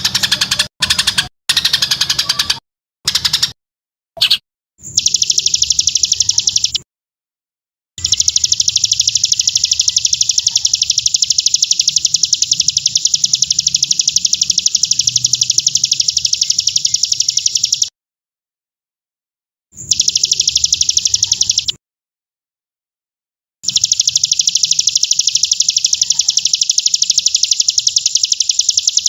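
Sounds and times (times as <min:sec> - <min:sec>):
songbird rapid high notes: 0:08.0 - 0:17.9.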